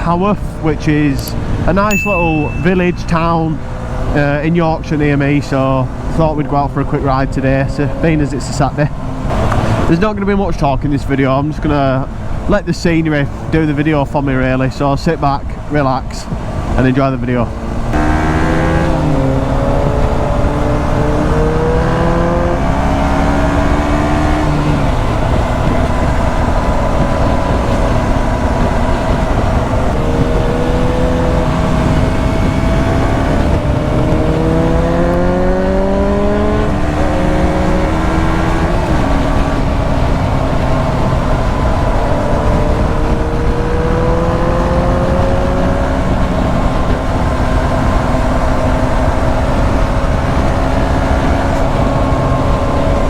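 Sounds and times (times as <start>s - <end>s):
wind noise: 0.0s - 53.0s
motorcycle engine accelerating: 17.4s - 53.0s.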